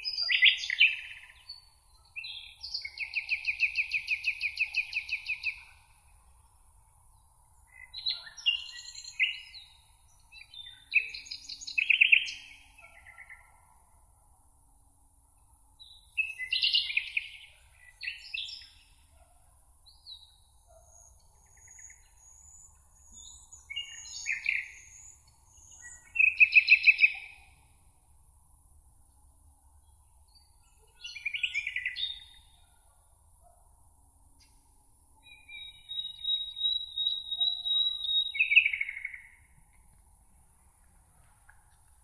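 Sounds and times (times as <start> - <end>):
songbirds chirping and trilling: 0.0 - 6.1, 6.8 - 14.0, 15.5 - 27.8, 29.2 - 33.6, 34.3 - 39.8
faint background hiss: 0.0 - 42.0.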